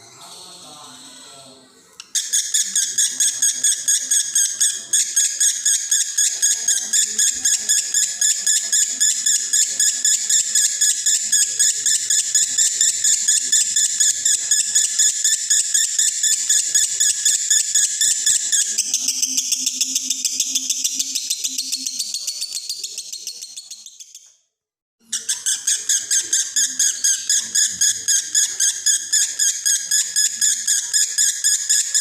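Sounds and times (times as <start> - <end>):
lovebird chattering trill: 2.0 - 24.1, 25.1 - 32.0.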